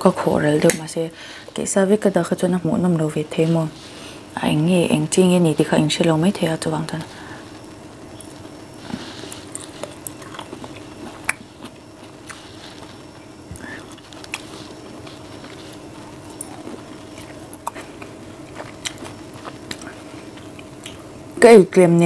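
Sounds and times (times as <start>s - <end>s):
person chewing wetly: 8.2s - 21.1s.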